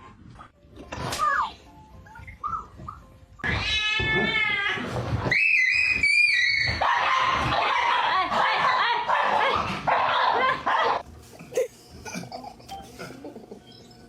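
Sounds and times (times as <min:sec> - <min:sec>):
cat meowing: 0:03.4 - 0:04.9.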